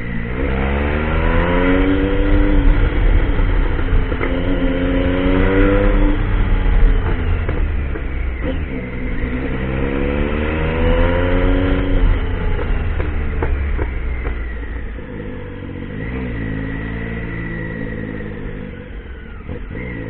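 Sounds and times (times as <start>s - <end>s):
heavy low rumble: 0.0s - 16.0s
motorcycle engine accelerating: 0.0s - 20.0s.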